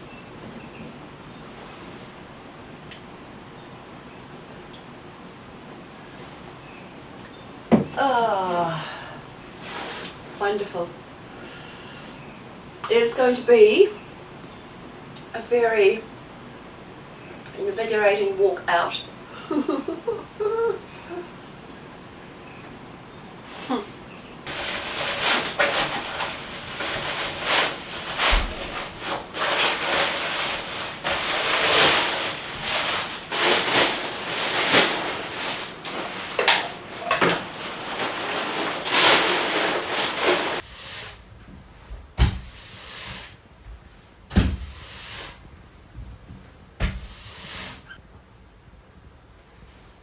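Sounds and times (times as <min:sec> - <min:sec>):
knocks and thumps on wood: 0:07.7 - 0:08.0, 0:42.2 - 0:42.5
gear rustling and scraping: 0:24.5 - 0:40.6.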